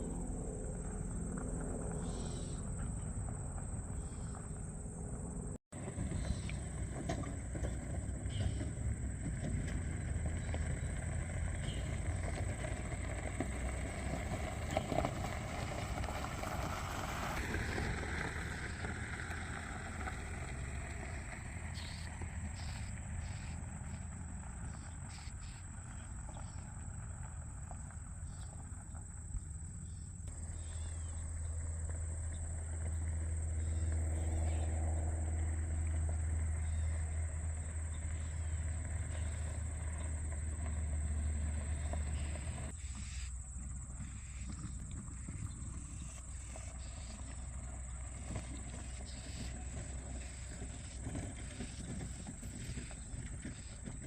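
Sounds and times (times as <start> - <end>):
high insect drone: 0.0 - 6.6, 15.8 - 27.1, 27.7 - 54.0
road traffic rumble: 0.0 - 54.0
vehicle passing: 0.0 - 54.0.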